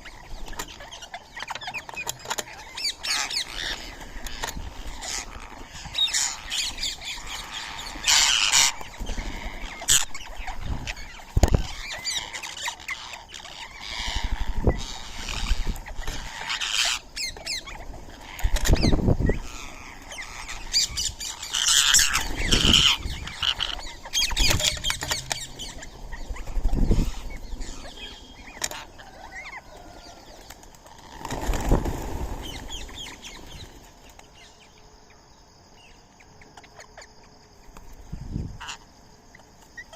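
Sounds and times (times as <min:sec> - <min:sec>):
birds calling: 0:00.0 - 0:39.9
wings flapping: 0:28.5 - 0:34.4.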